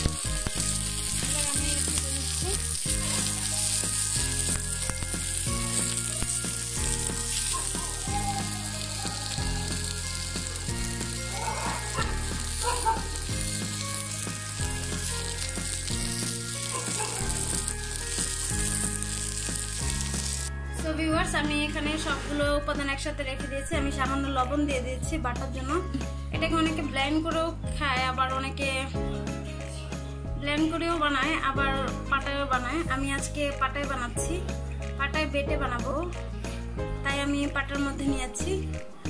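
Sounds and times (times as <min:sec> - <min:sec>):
vegetables sizzling in oil: 0:00.0 - 0:20.5
background music bass line: 0:00.0 - 0:39.0.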